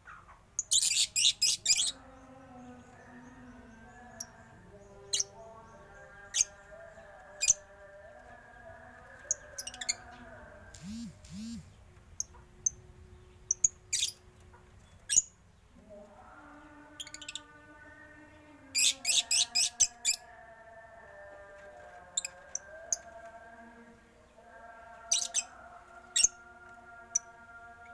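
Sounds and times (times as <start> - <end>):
faint steady hum: 1.9 - 19.0.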